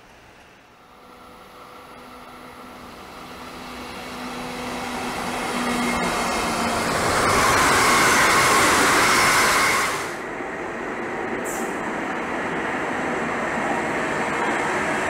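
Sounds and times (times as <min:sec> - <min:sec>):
electric trains rolling on rails: 0:00.0 - 0:15.0.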